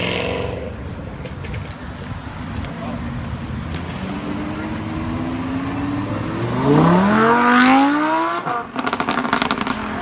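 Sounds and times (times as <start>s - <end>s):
car engine accelerating hard: 3.8s - 10.0s.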